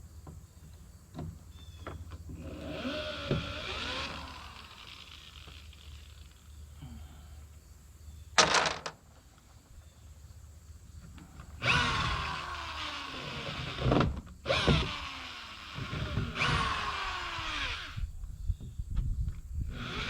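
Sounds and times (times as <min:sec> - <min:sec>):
electric drill backing out screws: 0:01.9 - 0:06.5, 0:11.5 - 0:18.1, 0:19.7 - 0:20.0.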